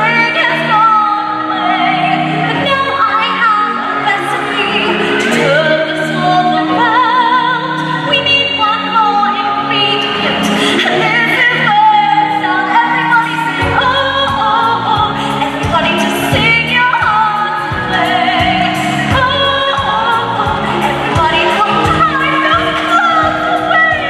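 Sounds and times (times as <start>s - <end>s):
voices singing over music: 0.0s - 24.0s.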